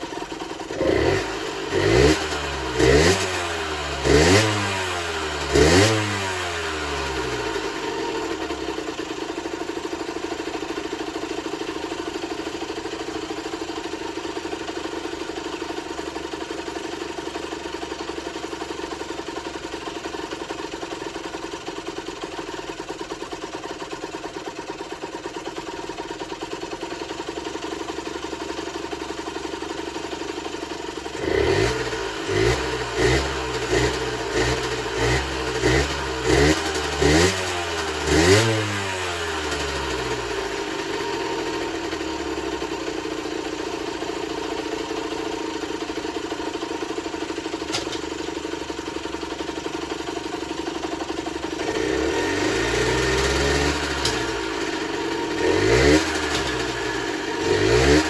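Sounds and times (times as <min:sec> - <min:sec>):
two-stroke engine idling: 0:00.0 - 0:58.0
engine revving: 0:00.7 - 0:08.8, 0:31.2 - 0:42.8, 0:47.6 - 0:48.3, 0:51.5 - 0:58.0.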